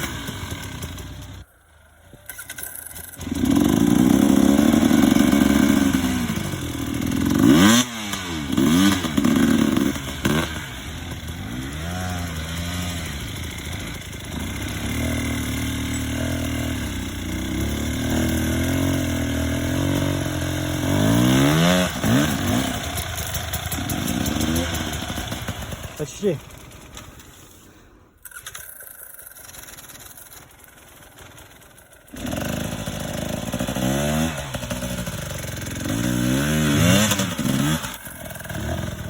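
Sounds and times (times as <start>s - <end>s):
motorcycle engine revving: 0.0s - 27.6s, 28.2s - 39.0s.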